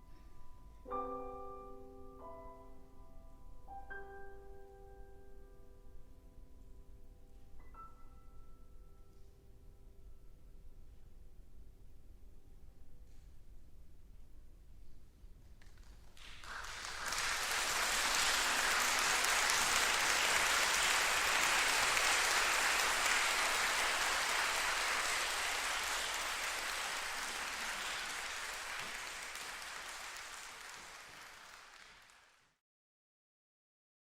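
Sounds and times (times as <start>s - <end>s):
audience applauding: 15.6s - 32.6s.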